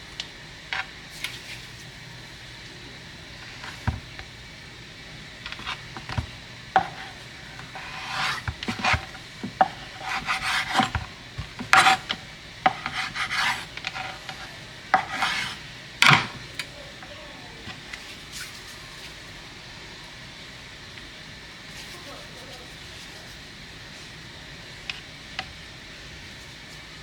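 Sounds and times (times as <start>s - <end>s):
scraping on hard surface: 5.4s - 16.4s.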